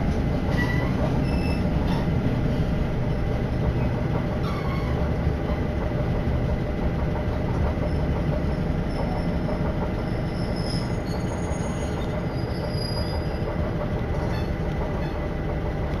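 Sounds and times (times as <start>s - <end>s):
train rumbling on track: 0.0s - 16.0s
faint high squeals: 0.5s - 2.0s, 10.0s - 13.4s.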